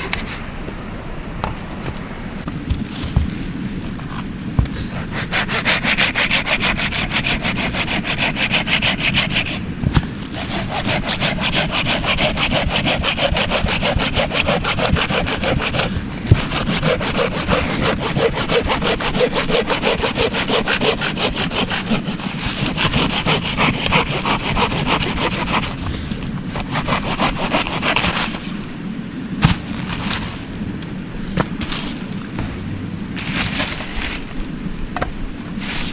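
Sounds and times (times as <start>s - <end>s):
hand saw cutting wood: 4.7s - 9.6s, 10.3s - 25.8s, 26.5s - 28.4s.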